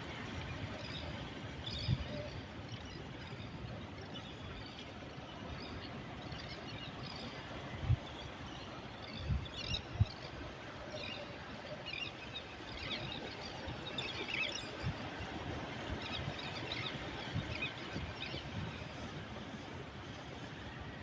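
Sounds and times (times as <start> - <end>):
sea surf washing: 10.3 - 21.0.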